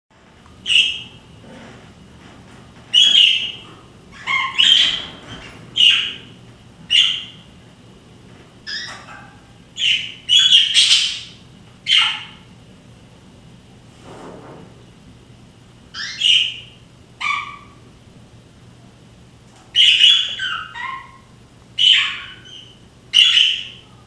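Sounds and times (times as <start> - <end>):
budgerigar chirps: 4.2 - 5.2, 9.8 - 12.4, 16.0 - 17.8, 19.8 - 23.8.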